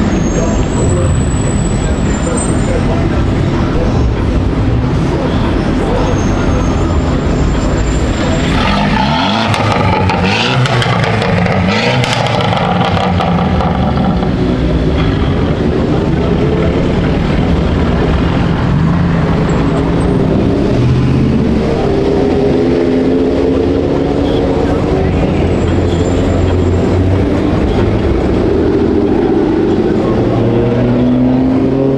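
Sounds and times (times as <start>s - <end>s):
car engine accelerating: 6.4s - 31.9s.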